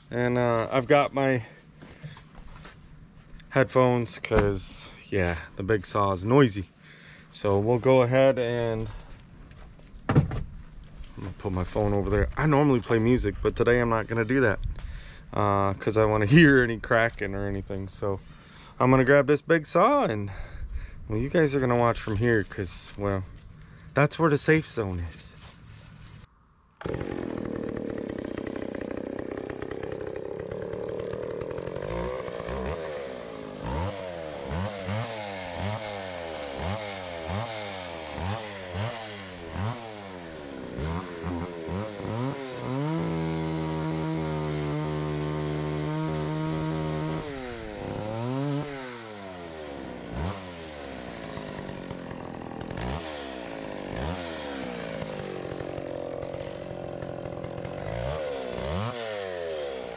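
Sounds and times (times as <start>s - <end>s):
chainsaw revving: 26.8s - 59.9s.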